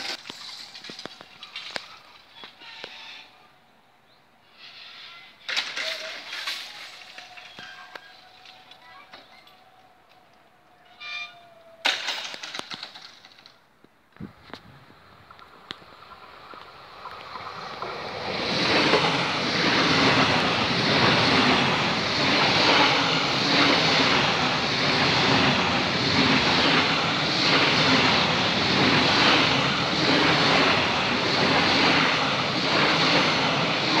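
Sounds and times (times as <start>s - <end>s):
high-speed train passing: 14.8s - 34.0s.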